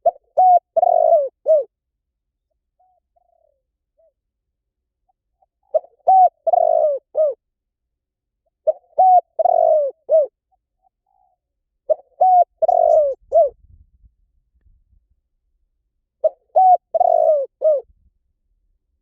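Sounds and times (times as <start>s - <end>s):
dove cooing: 0.0s - 1.7s, 2.8s - 4.2s, 5.4s - 7.4s, 8.6s - 13.6s, 16.2s - 17.9s.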